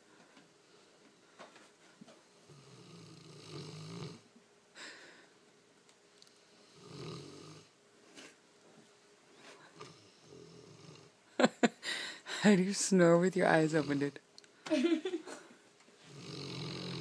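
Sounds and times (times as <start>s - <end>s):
dog snoring: 2.4s - 4.3s, 6.5s - 7.7s, 9.7s - 11.2s, 16.0s - 17.0s.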